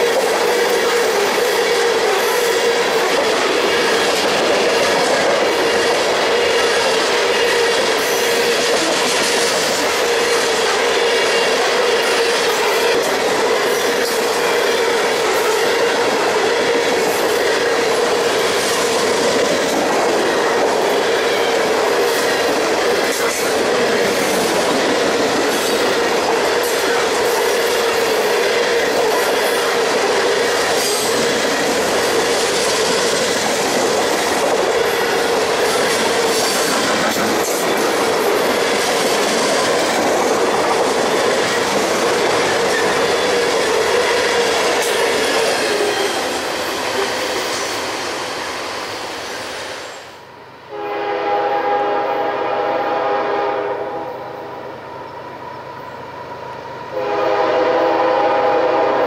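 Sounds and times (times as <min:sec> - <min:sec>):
steel wheels whining: 0:00.0 - 0:50.0
freight train rolling past: 0:00.0 - 0:59.0.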